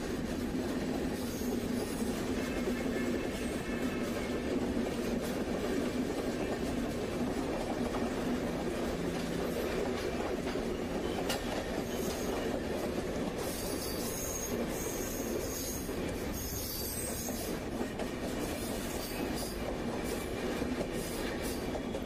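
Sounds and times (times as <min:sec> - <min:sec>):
trains rumbling on tracks: 0:00.0 - 0:22.0
high-pitched wheel squeal: 0:13.5 - 0:17.5.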